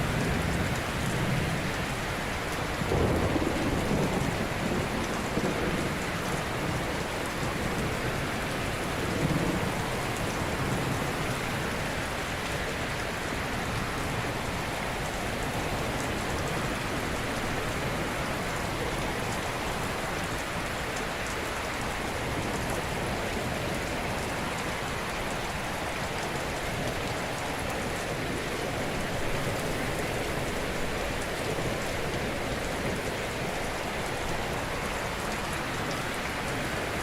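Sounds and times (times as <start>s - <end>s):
water rushing: 8.2s - 37.0s.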